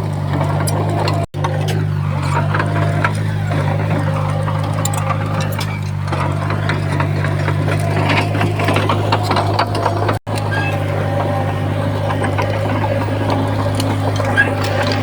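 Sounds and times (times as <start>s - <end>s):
bulldozer diesel engine running: 0.0s - 15.0s
sharp clicks and rattles: 0.0s - 15.0s.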